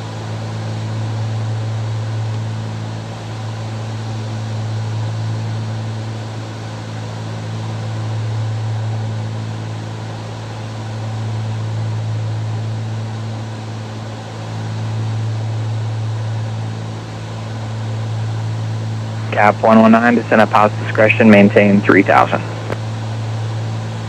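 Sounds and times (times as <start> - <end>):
propeller aircraft engines droning: 17.2 - 24.0.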